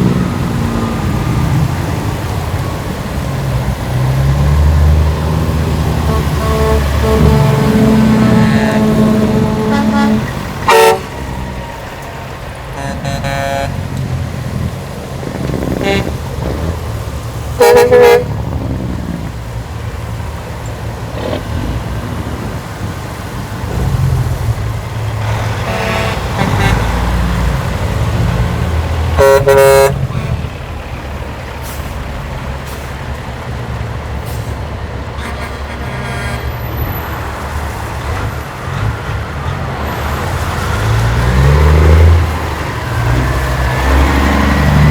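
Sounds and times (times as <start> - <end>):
diesel engines rumbling: 0.0 - 44.9
truck horn blasts: 5.5 - 11.9, 12.7 - 17.0, 17.6 - 19.1, 25.2 - 30.8, 35.1 - 37.1
fainter honks: 5.9 - 11.8, 12.7 - 14.0, 15.5 - 16.8, 17.6 - 18.4, 25.3 - 27.7, 29.2 - 30.5, 35.2 - 36.8.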